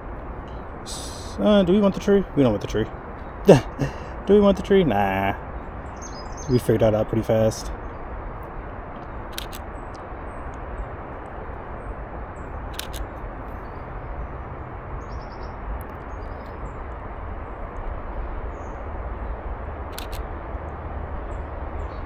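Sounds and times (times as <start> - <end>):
low rushing background noise: 0.0 - 22.0
bird chirps: 5.2 - 8.0
camera shutter clicks: 9.3 - 9.7, 12.7 - 13.1, 19.9 - 20.3.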